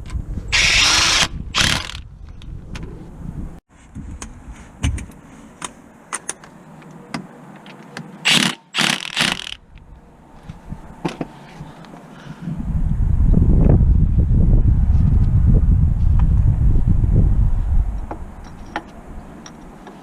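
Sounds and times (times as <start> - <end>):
ratchet clicking: 8.3 - 9.6.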